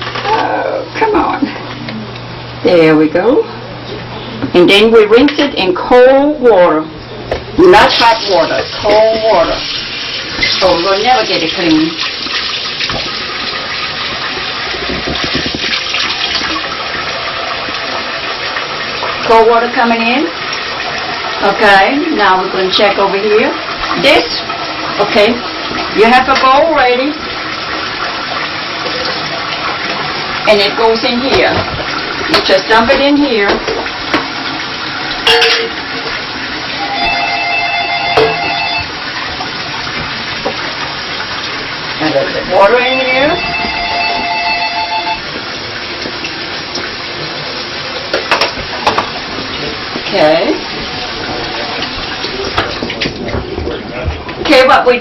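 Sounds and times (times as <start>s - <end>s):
tap water splashing in sink: 7.3s - 37.2s, 38.1s - 44.3s, 45.3s - 47.4s, 48.0s - 54.9s
electronic tone: 36.7s - 38.9s, 42.8s - 45.3s.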